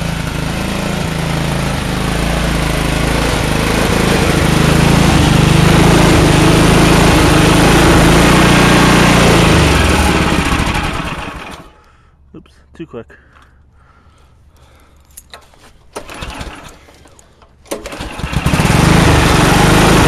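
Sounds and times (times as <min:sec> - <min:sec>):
small engine running: 0:00.0 - 0:11.8, 0:16.0 - 0:17.1, 0:17.7 - 0:20.0.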